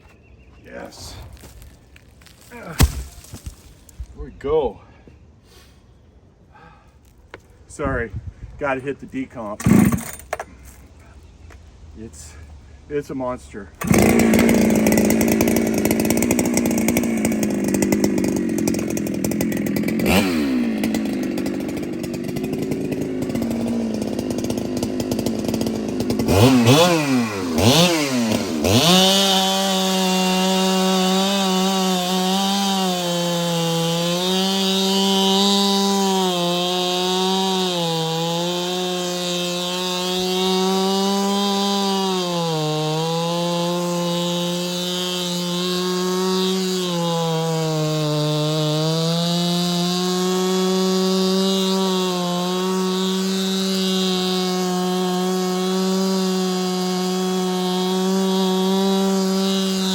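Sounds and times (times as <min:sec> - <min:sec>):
chainsaw running at high revs: 0:09.6 - 0:10.2, 0:13.8 - 0:59.9.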